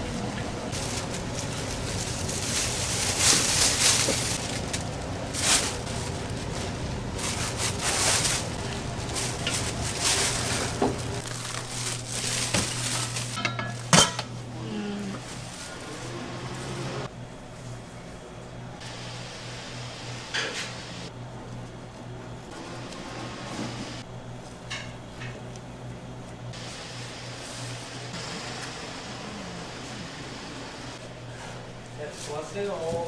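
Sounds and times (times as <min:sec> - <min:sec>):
steady machine hum: 0:00.0 - 0:33.0
dishes and utensils clattering: 0:13.4 - 0:14.3.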